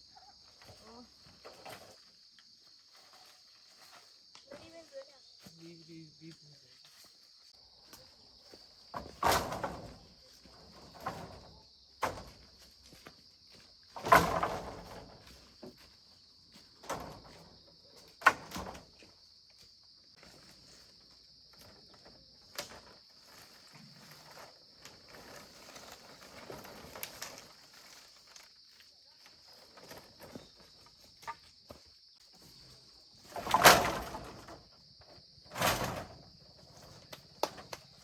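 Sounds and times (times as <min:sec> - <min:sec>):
insect chirring: 0:18.8 - 0:38.0
rustling or scraping: 0:20.2 - 0:28.7, 0:29.3 - 0:34.7, 0:35.5 - 0:38.0.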